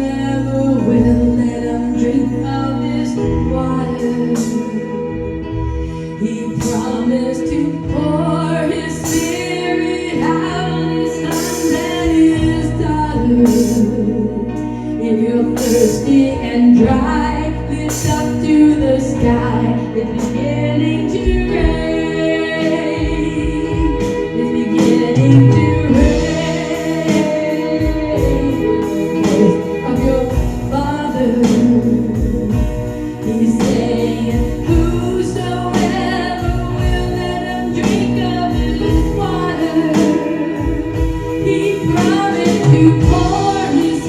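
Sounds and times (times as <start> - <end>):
gospel singing with instruments: 0.0 - 44.0.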